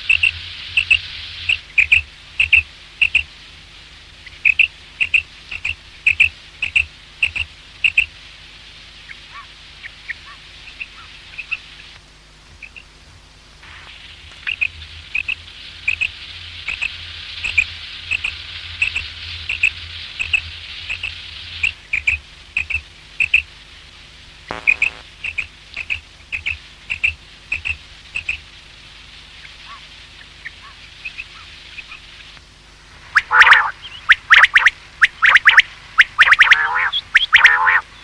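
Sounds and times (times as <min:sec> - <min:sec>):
buzzy rasp: 0:24.5 - 0:28.4
quail calling: 0:33.2 - 0:38.0.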